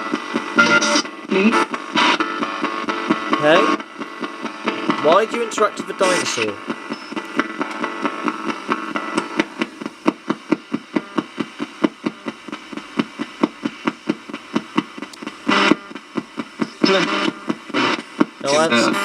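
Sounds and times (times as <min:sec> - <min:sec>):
radio blips and static: 0:00.0 - 0:19.0.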